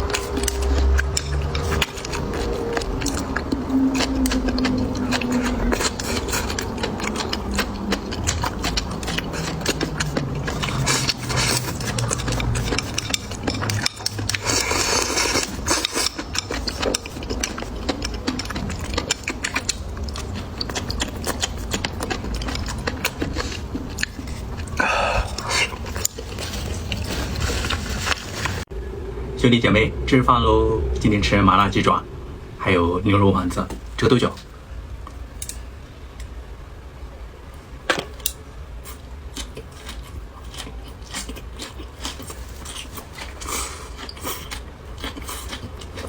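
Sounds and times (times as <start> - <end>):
crunching and wet chewing: 0.0 - 28.7, 38.0 - 46.0.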